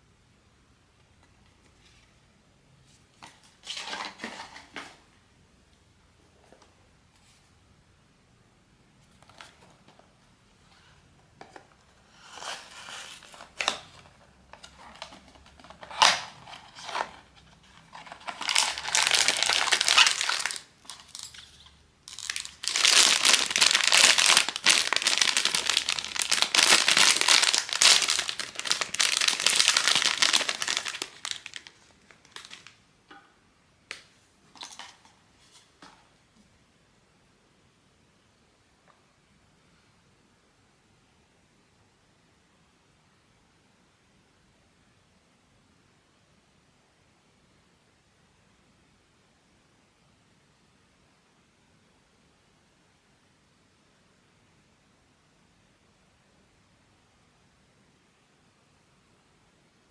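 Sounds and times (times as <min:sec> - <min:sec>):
plastic packaging crinkling: 0:12.4 - 0:32.8
packaging being torn open: 0:14.9 - 0:17.1, 0:17.8 - 0:21.5, 0:22.1 - 0:32.8.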